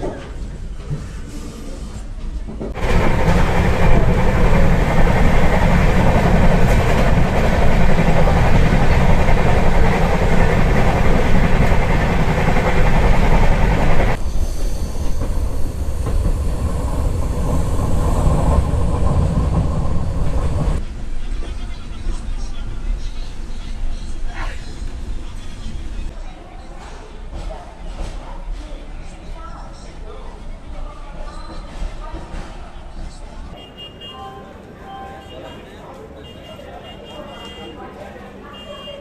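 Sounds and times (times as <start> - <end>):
train wheels clattering on rails: 2.3 - 20.8.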